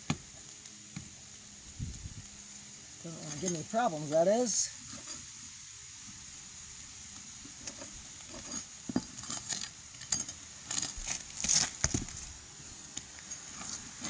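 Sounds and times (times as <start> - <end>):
metal pry tool scraping shingles: 7.6 - 12.3.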